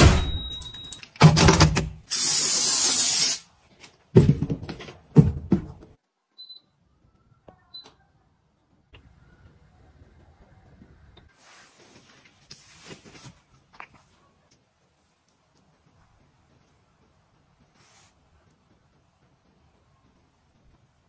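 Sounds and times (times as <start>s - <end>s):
faint electronic beeps: 6.3s - 11.3s.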